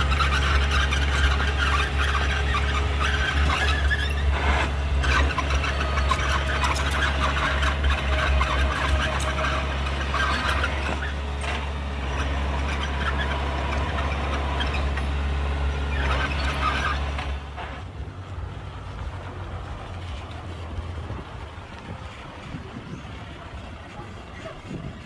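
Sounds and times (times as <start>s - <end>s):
rattling and clanking: 0.0s - 17.9s
heavy diesel engine running: 0.0s - 25.0s.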